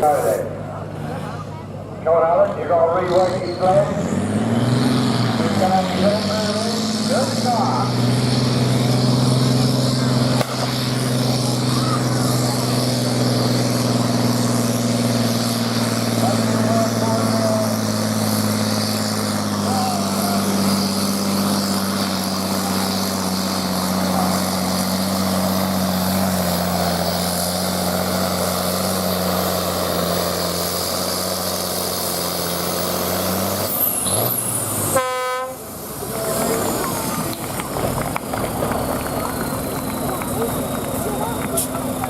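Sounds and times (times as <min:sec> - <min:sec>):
diesel tractor engine droning: 0:00.0 - 0:42.0.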